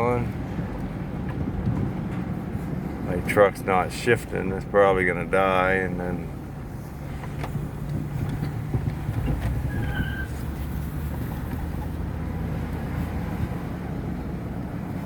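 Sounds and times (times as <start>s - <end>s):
truck engine droning: 0.0s - 15.0s
brief high squeak: 9.6s - 10.5s.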